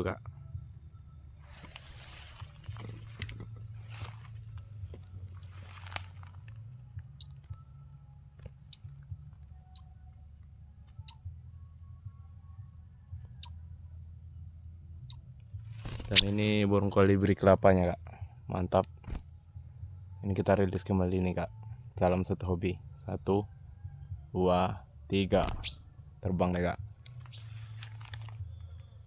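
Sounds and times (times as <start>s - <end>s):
small bird chirping: 0.0s - 14.0s, 15.0s - 17.1s, 25.3s - 26.2s, 26.8s - 28.6s
high-pitched insect drone: 0.0s - 29.0s.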